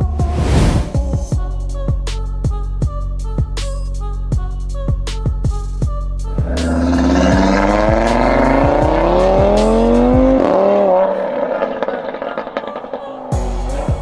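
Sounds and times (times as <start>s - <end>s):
car engine accelerating hard: 6.4s - 14.0s.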